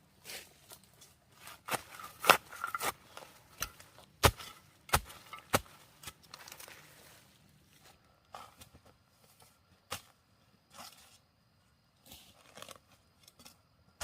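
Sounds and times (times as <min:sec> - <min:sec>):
blade chopping wood: 0:01.7 - 0:03.0, 0:03.6 - 0:06.2.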